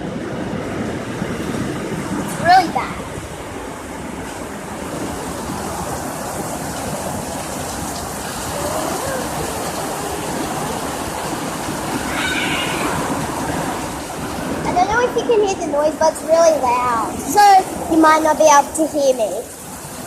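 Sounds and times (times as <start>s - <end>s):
heavy hail pelting down: 4.4s - 20.0s.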